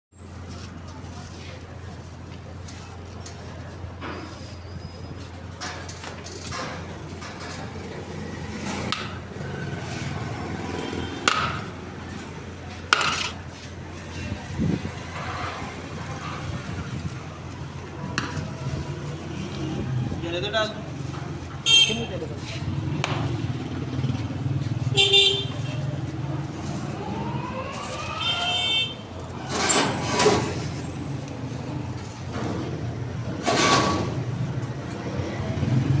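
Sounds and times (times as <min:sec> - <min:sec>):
steady background noise: 0:00.2 - 0:36.0
vehicle engines running: 0:00.2 - 0:36.0
sharp metallic knocks: 0:11.2 - 0:11.7.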